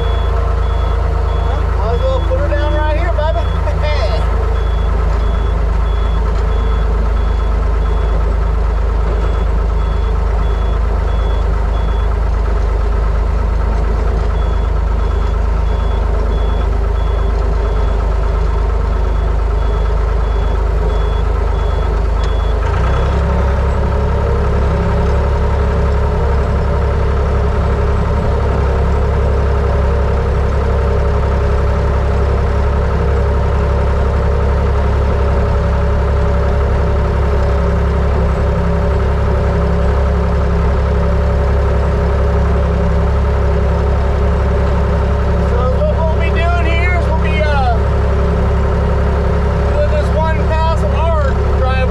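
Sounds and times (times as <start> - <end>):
backup alarm beeping: 0.0 - 8.3, 14.3 - 18.2, 18.8 - 22.6
truck engine running: 0.0 - 51.9.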